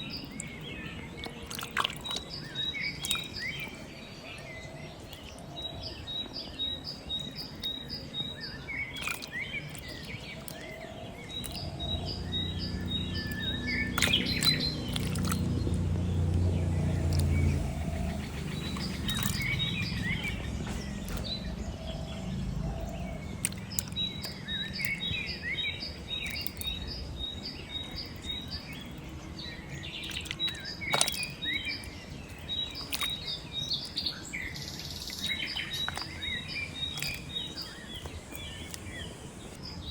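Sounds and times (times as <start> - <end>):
birds chirping and calling: 0.0 - 39.9
low rumble: 11.6 - 23.4.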